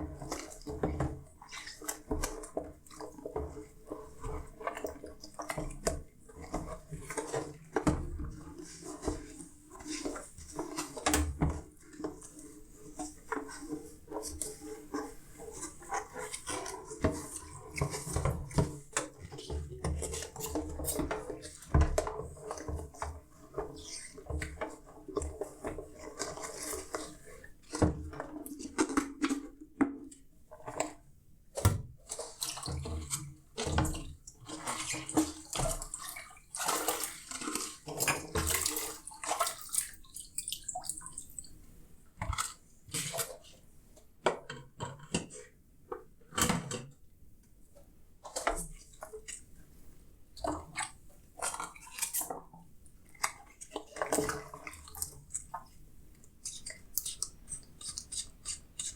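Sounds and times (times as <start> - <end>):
water splashing and running: 31.6 - 41.6.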